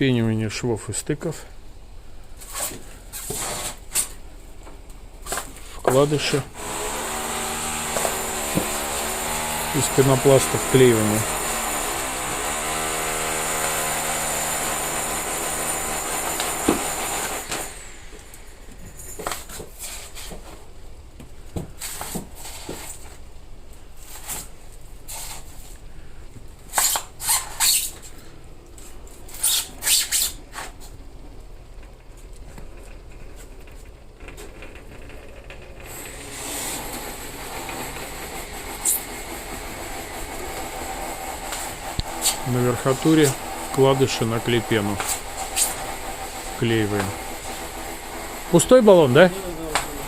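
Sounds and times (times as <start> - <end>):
power tool motor running: 6.0 - 19.6, 35.8 - 50.0
sharp hissing bursts: 16.9 - 20.2.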